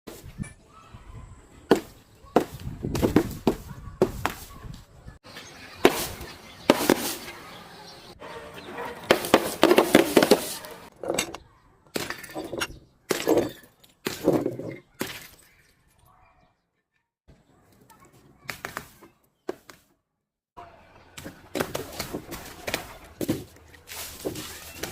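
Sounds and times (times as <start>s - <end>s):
glass and objects being smashed: 9.1s - 15.9s.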